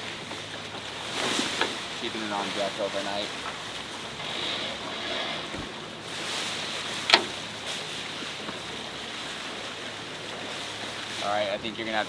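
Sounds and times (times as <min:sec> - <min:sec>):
sea wash: 0:00.0 - 0:12.0
sharp clack on yacht: 0:06.9 - 0:07.5.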